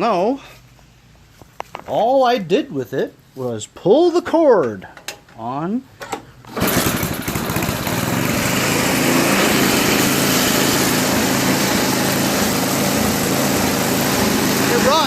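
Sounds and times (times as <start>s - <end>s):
snowblower engine running: 6.5s - 15.0s.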